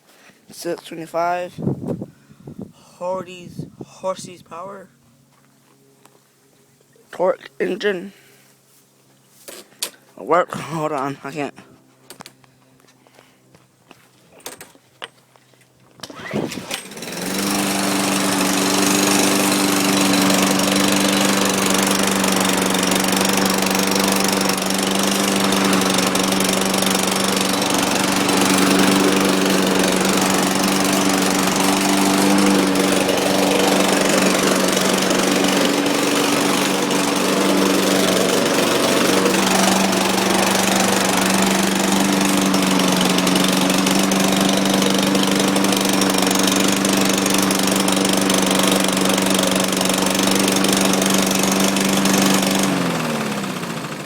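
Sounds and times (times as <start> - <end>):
lawn mower engine running: 16.0 - 54.0.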